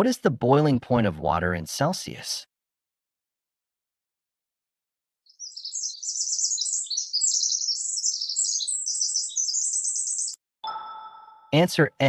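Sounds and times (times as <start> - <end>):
high-pitched bird-like chirping: 5.3 - 11.6.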